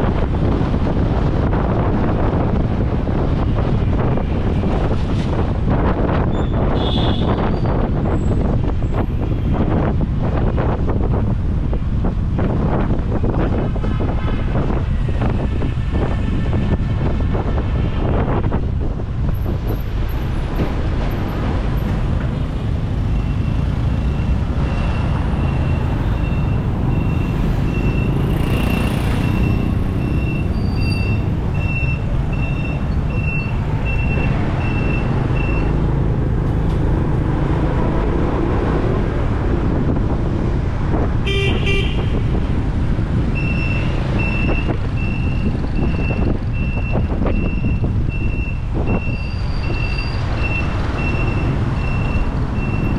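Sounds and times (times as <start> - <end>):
motorbike engine and road rumble: 0.0 - 52.9
vehicle horn honk: 6.8 - 7.4, 41.2 - 42.2
high electronic beep: 23.1 - 35.8.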